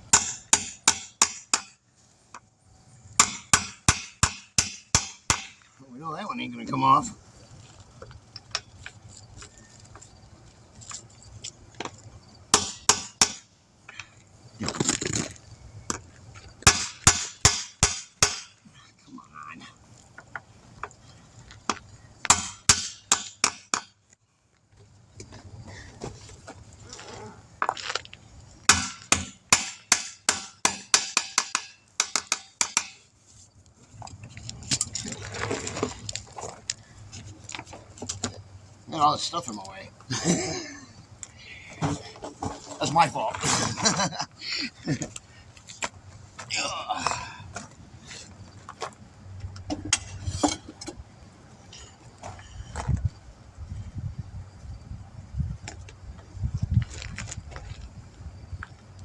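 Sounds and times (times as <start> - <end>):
hammer tapping metal: 0.1 - 1.8, 28.7 - 33.0.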